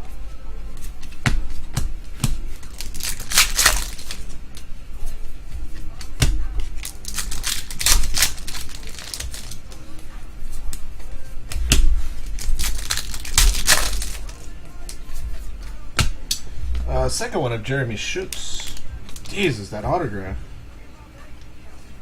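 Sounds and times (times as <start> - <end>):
cards being flipped by hand: 2.2 - 4.7, 5.7 - 9.8, 11.6 - 15.3.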